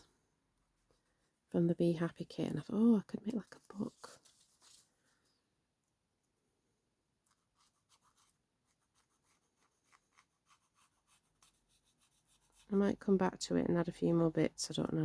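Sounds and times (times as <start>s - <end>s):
pen scratching on paper: 7.3s - 12.7s.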